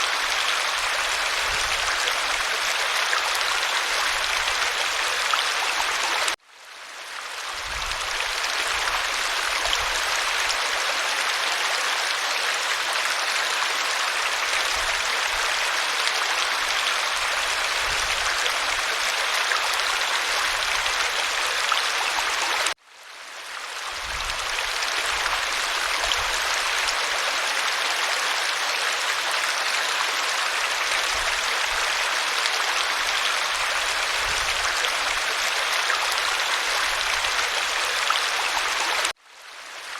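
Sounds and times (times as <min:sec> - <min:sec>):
waterfall rushing: 0:00.0 - 0:06.4.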